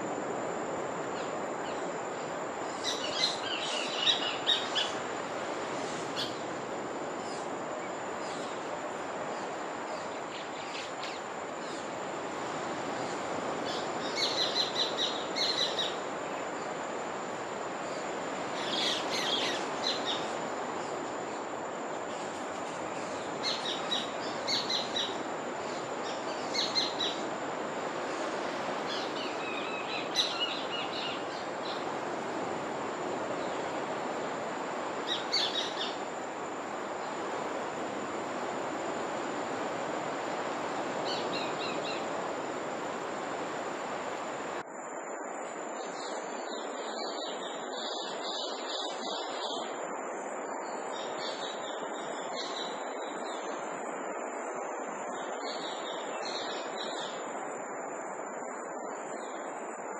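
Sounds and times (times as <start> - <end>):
high birdsong chirping: 1.1 - 6.6, 17.8 - 32.0.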